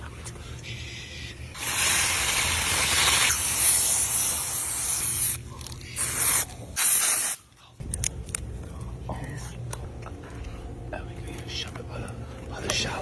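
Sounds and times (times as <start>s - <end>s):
aerosol spray can hissing: 1.6s - 5.4s, 6.0s - 7.4s.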